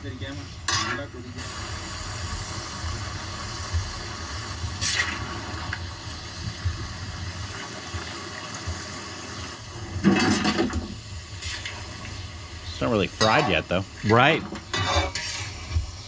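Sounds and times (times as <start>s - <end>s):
chicken sizzling in pan: 0.0s - 16.0s
scraping in pan: 13.2s - 16.0s.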